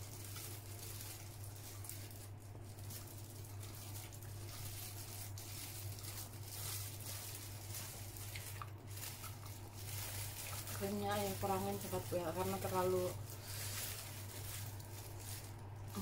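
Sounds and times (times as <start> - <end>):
plastic bag rustling: 0.0 - 16.0
steady low hum: 0.0 - 16.0
person chewing soft food: 0.2 - 10.8.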